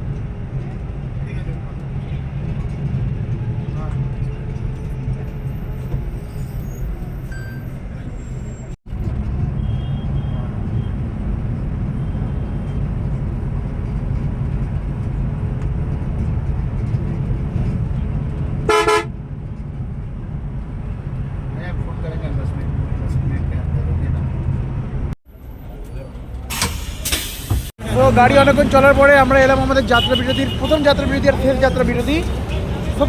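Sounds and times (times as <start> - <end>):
bus engine and road rumble: 0.0 - 33.0
bus horn blast: 9.4 - 10.9, 18.7 - 19.2, 26.5 - 33.0.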